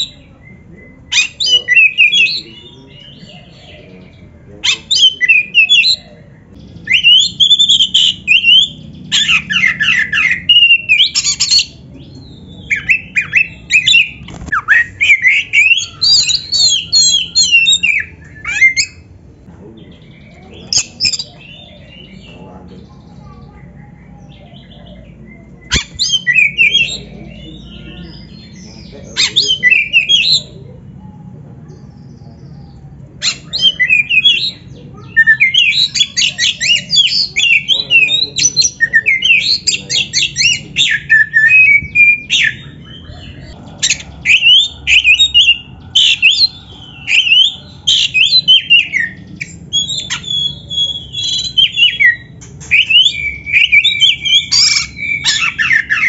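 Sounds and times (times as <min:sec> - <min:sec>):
bird singing whistles and chatter: 0:00.0 - 0:56.0.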